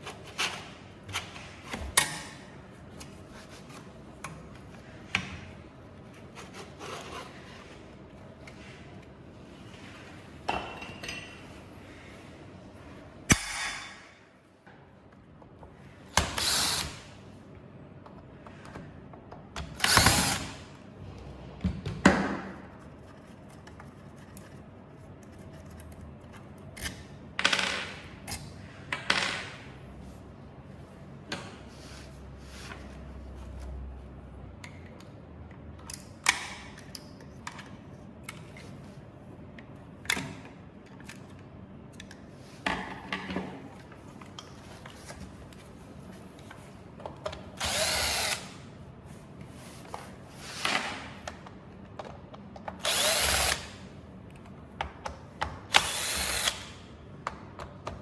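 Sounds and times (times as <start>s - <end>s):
electric screwdriver whirring: 47.6s - 48.6s, 52.8s - 53.8s, 55.7s - 56.7s.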